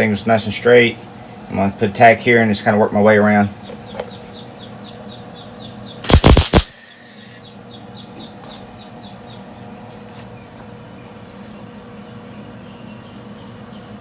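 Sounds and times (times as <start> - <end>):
welding arc crackling: 6.0 - 7.4
welding hiss: 6.0 - 7.4.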